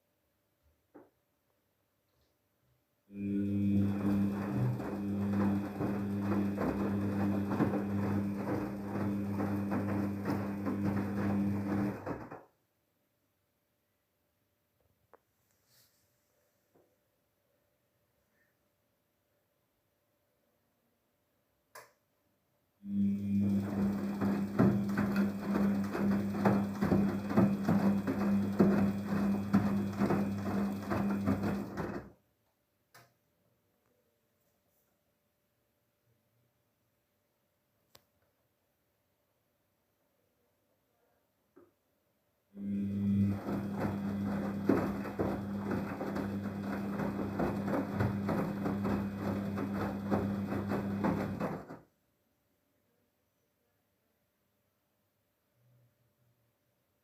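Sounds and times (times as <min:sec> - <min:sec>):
washing machine motor humming: 0:03.1 - 0:12.4, 0:22.9 - 0:32.1, 0:42.6 - 0:51.8
washing machine churning and sloshing: 0:03.2 - 0:12.4, 0:23.0 - 0:32.1, 0:42.6 - 0:51.8.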